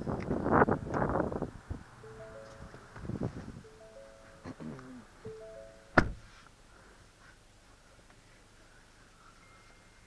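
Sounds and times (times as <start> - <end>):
faint steady hum: 0.4 - 10.0
thin high tone: 2.0 - 6.0.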